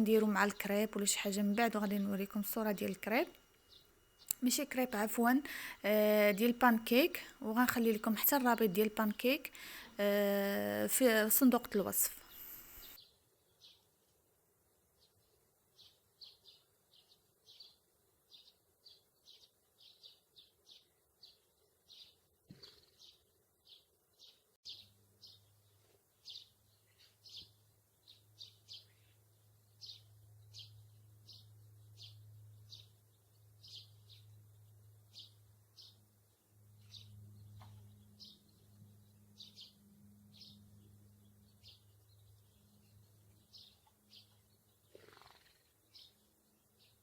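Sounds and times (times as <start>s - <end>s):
steady low hum: 0.0s - 13.0s
small bird chirping: 0.0s - 14.0s, 15.0s - 47.0s.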